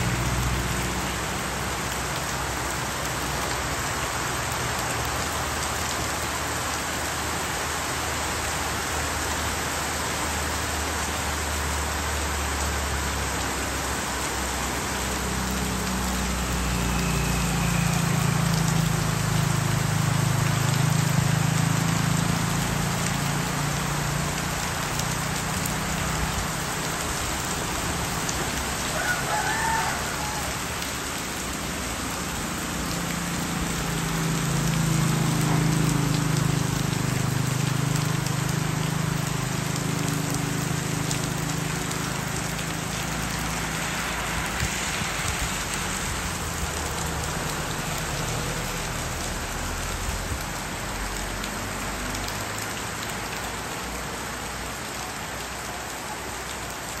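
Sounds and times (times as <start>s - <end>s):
heavy rain on road and roofs: 0.0s - 57.0s
passing vehicle engine hum: 0.0s - 57.0s
rooster crowing: 28.8s - 31.0s.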